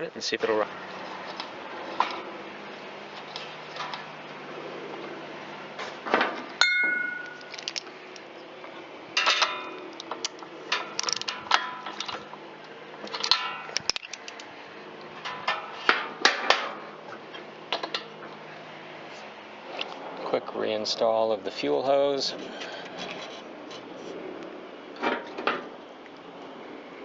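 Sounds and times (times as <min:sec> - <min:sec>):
metallic clang: 0:06.2 - 0:07.8, 0:13.1 - 0:14.1
metal tools clinking: 0:06.6 - 0:08.3.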